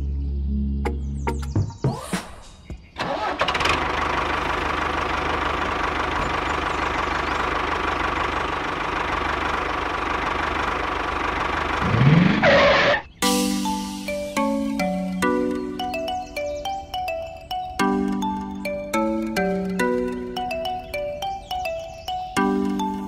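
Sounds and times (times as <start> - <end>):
chiming music jingle: 13.2 - 23.0.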